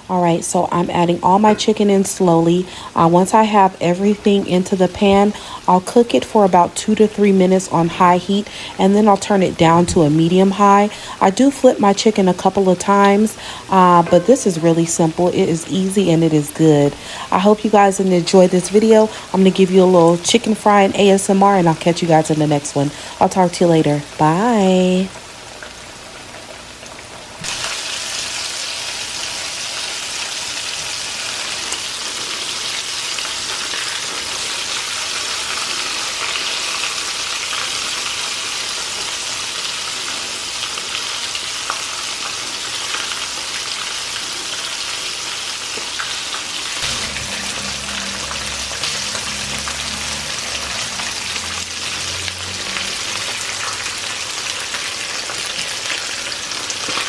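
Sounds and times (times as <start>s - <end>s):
chicken frying in oil: 0.0s - 57.0s
low rumble: 46.8s - 53.7s.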